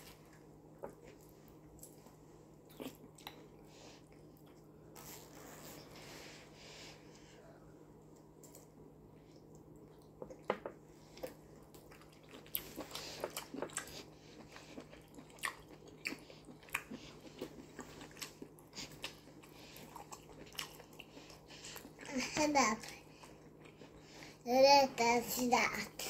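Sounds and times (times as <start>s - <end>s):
chewing and mouth smacks: 0.3s - 5.3s, 9.3s - 22.1s.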